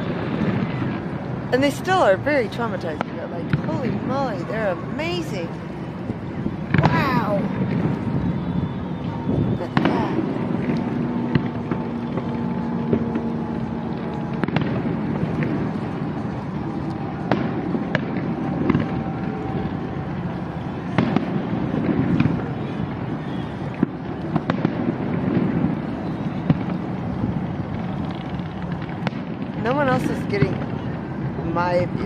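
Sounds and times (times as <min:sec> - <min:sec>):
fireworks bangs and crackling: 0:00.0 - 0:32.0.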